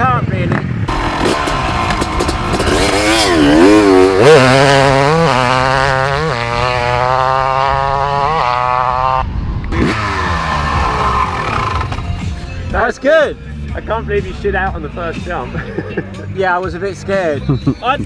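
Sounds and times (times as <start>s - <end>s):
motocross bike engine revving: 0.4s - 12.5s.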